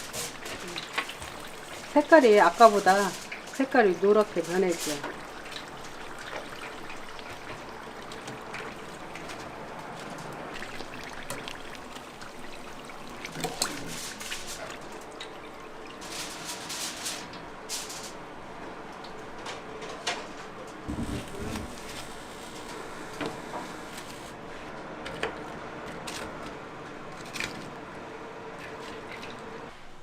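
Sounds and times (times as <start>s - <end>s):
deep-frying sizzle with pops: 0.0s - 9.4s, 20.8s - 24.3s.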